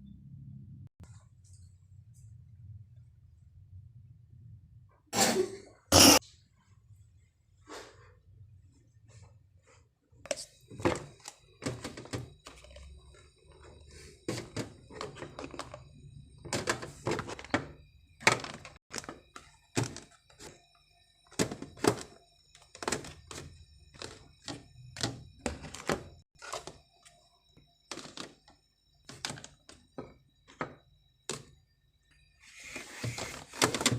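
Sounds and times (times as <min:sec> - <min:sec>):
objects thunking and knocking: 0:10.3 - 0:31.6.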